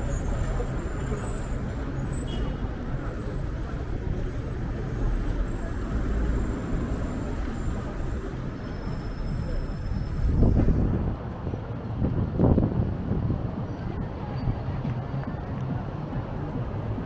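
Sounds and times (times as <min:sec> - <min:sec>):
road traffic: 0:00.0 - 0:17.0
wind buffeting microphone: 0:07.8 - 0:16.3.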